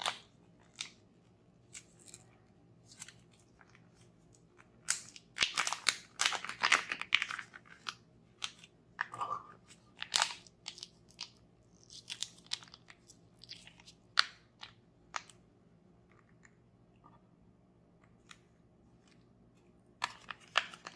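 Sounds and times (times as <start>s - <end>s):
packaging crunching and crackling: 4.8s - 8.6s, 10.0s - 15.3s, 20.0s - 20.9s.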